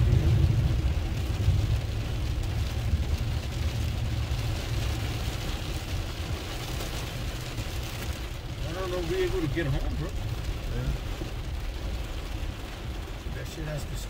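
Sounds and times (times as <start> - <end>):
truck rumble: 0.0 - 6.3
rain and water spray hiss: 0.0 - 14.0.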